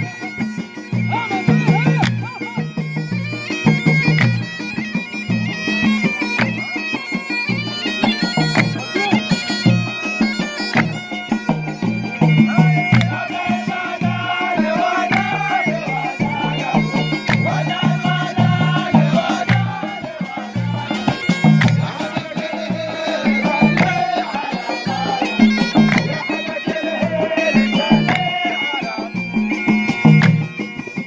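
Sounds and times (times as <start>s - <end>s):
reedy wind instrument melody: 0.0s - 31.0s
steady drum beat: 11.9s - 28.8s.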